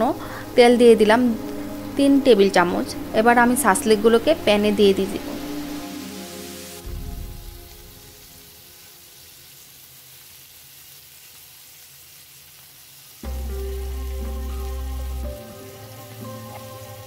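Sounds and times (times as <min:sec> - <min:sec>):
skewers sizzling in oil: 0:00.0 - 0:17.0
background music with heavy bass: 0:04.0 - 0:08.2, 0:13.2 - 0:17.0.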